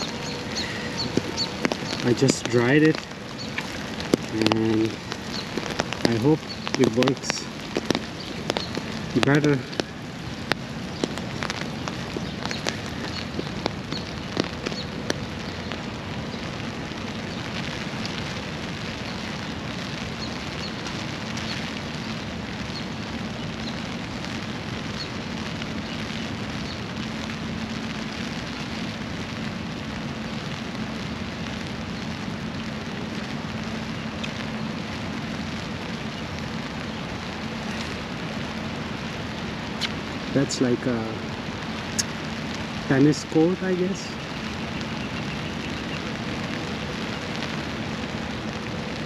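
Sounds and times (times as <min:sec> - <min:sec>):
rain pattering: 0:00.0 - 0:49.0.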